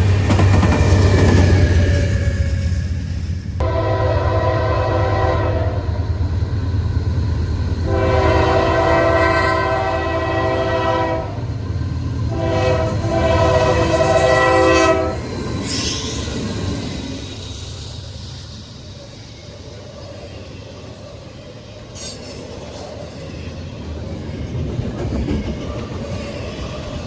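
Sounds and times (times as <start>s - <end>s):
train rumbling: 0.0s - 27.0s
locomotive air horn blasts: 3.6s - 5.9s, 7.8s - 11.4s, 12.3s - 15.2s.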